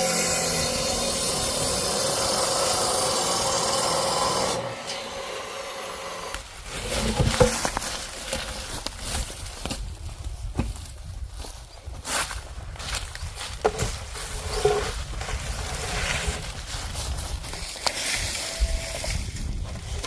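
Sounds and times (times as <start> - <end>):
machine humming: 0.0 - 6.5
knocks and scraping of firewood: 6.3 - 11.2, 11.9 - 20.0.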